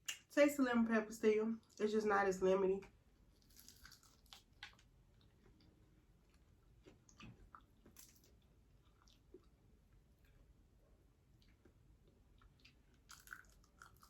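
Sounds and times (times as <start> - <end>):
person chewing food: 3.3 - 10.6, 11.3 - 14.0.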